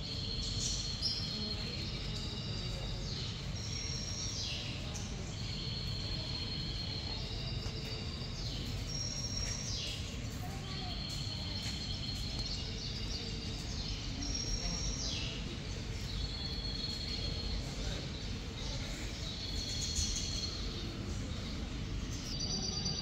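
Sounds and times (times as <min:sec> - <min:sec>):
birds chirping and trilling: 0:00.0 - 0:23.0.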